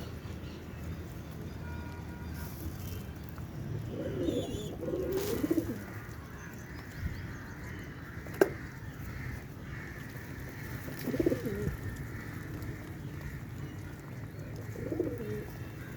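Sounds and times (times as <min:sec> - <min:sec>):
steady background noise: 0:00.0 - 0:15.9
low wavering bird calls: 0:03.8 - 0:13.8.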